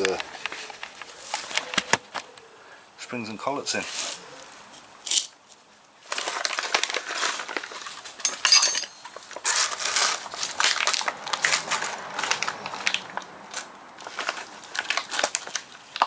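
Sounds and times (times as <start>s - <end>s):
metal parts rustling and clicking: 8.3s - 9.2s
bright metallic clink: 8.3s - 9.3s.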